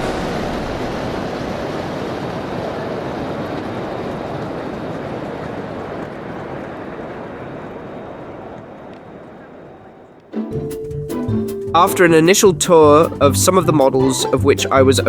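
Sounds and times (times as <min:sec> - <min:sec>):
moving train rumble: 0:00.0 - 0:09.6.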